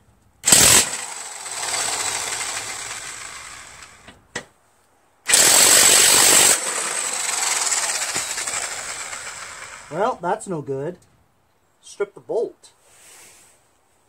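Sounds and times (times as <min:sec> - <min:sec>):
electric impact wrench hammering: 0:00.4 - 0:04.2, 0:05.3 - 0:10.0.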